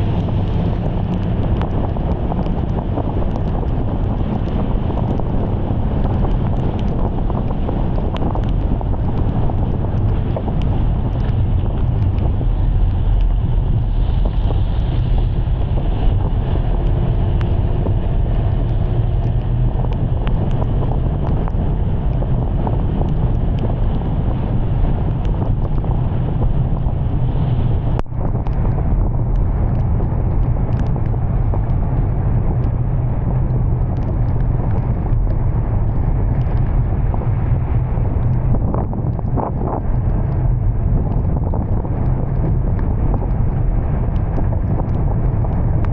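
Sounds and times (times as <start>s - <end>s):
wind buffeting microphone: 0.0s - 45.9s
small ticks: 6.0s - 13.3s, 29.3s - 31.8s.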